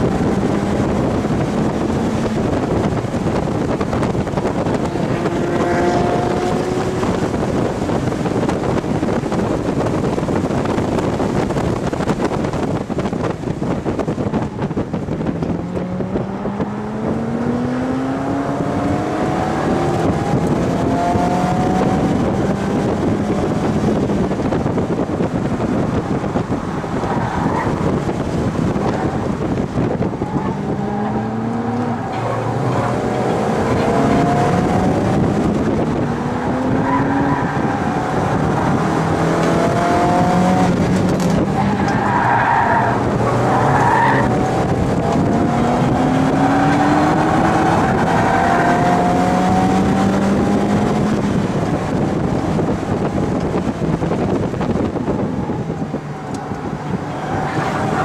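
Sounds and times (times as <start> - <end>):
car engine accelerating: 0.0 - 58.0
wind and road noise: 0.0 - 58.0.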